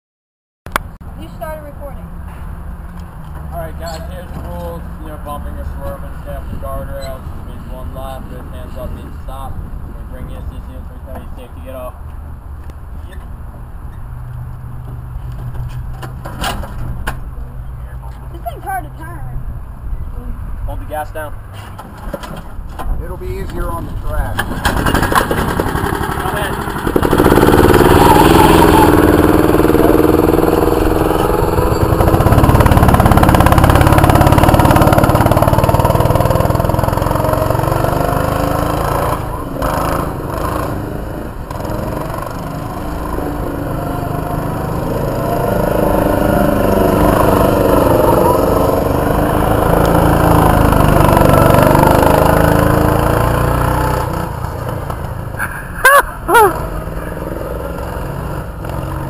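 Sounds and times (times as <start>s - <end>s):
short sharp engine revs: 24.4s - 54.6s, 56.3s - 59.0s.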